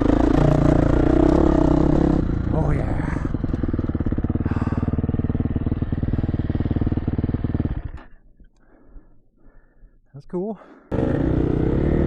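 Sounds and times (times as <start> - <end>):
dirt bike engine running: 0.0 - 8.2, 10.9 - 12.0.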